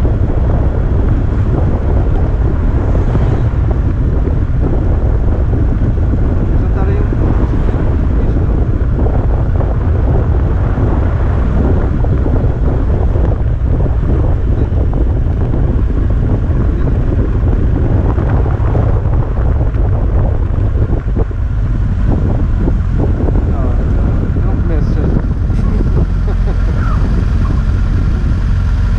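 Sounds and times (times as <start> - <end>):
steady low rumble: 0.0 - 28.9
wind buffeting microphone: 0.0 - 28.9.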